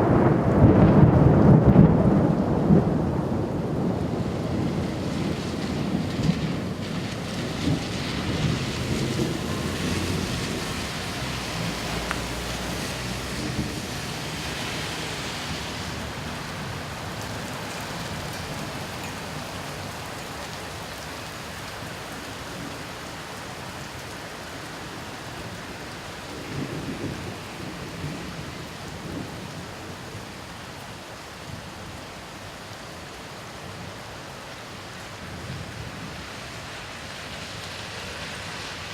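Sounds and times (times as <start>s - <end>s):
thunder rumbling: 0.0s - 18.6s
steady rain: 0.0s - 38.9s.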